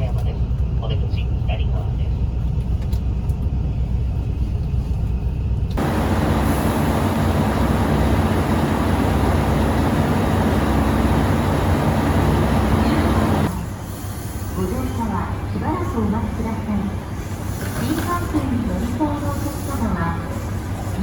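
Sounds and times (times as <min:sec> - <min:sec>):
train rumbling: 0:00.0 - 0:21.0
loud rushing noise: 0:05.8 - 0:13.5.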